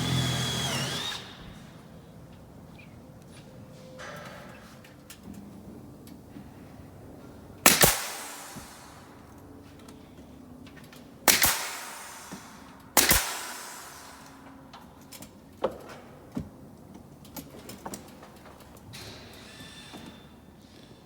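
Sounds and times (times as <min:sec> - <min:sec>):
nail gun shots with hiss: 0:07.7 - 0:09.1, 0:11.3 - 0:14.5.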